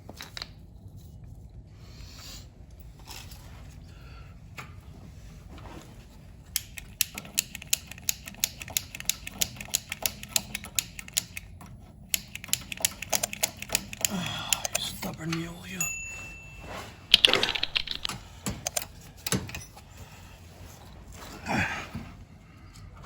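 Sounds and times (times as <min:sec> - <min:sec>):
rapid mechanical clicks: 0:06.6 - 0:15.0.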